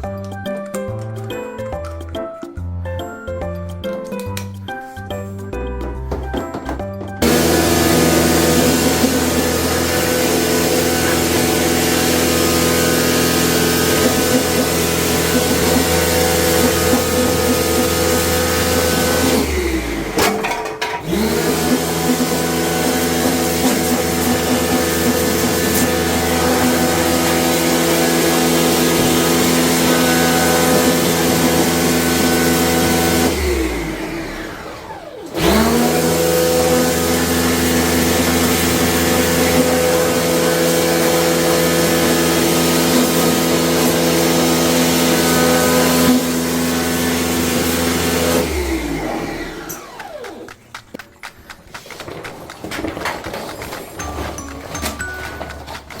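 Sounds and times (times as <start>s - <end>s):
electric motor humming: 6.9s - 50.8s.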